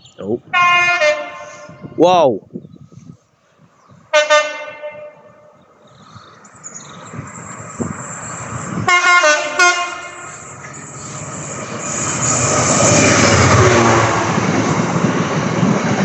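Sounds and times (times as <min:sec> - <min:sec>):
two-tone locomotive air horn: 0:00.5 - 0:01.9, 0:04.1 - 0:05.4, 0:08.9 - 0:10.4
train rumbling past: 0:03.5 - 0:16.0.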